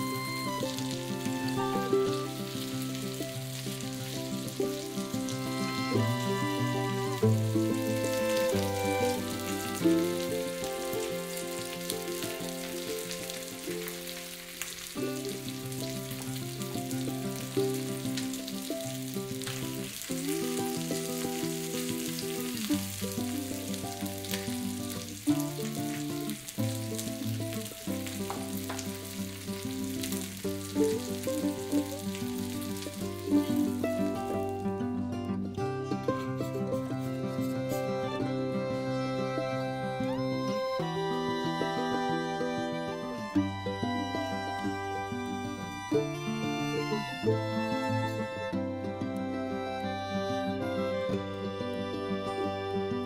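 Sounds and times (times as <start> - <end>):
background music of held notes: 0.0 - 18.8, 36.0 - 53.0
chicken frying in hot oil: 0.7 - 6.5, 7.3 - 34.5.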